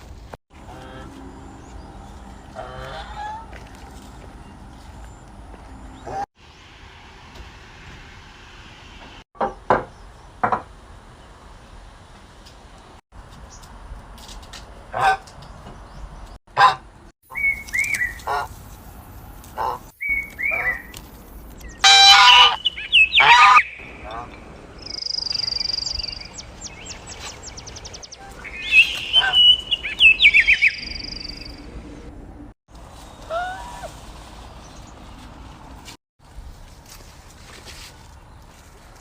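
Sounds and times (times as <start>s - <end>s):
birds chirping and calling: 17.3s - 18.7s, 19.5s - 31.8s
high steady bird trill: 17.3s - 18.7s, 19.6s - 31.7s.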